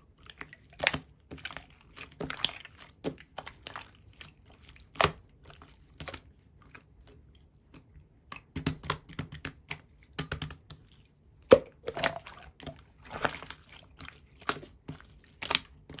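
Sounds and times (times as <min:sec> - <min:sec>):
slime bubble pops: 0:11.5 - 0:12.2.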